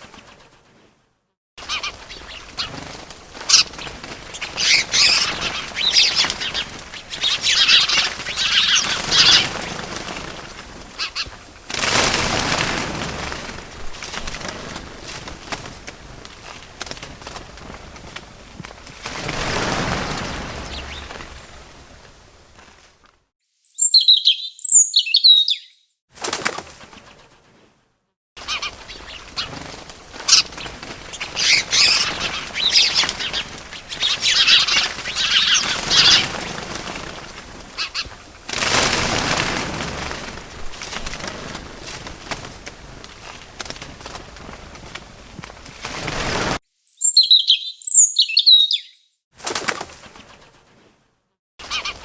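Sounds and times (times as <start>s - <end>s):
bird wings flapping: 0.0s - 23.3s, 26.1s - 27.8s, 28.4s - 46.6s, 49.4s - 52.0s
birds chirping: 1.6s - 10.3s, 19.2s - 22.0s, 23.5s - 25.9s, 28.4s - 36.8s, 46.7s - 49.1s.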